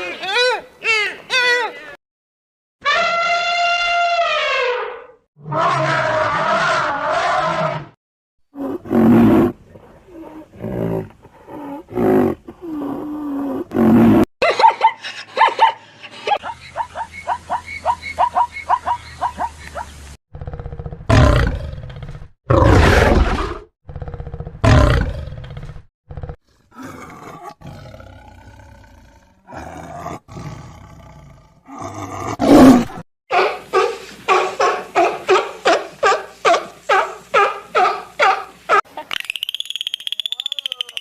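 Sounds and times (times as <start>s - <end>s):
big cat roaring and growling: 5.4s - 14.3s, 20.3s - 33.0s.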